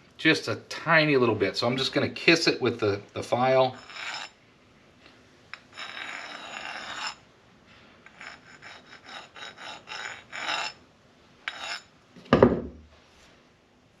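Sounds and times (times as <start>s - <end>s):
hand file rasping on metal: 3.7s - 4.4s, 5.6s - 7.2s, 8.0s - 10.8s, 11.5s - 11.9s.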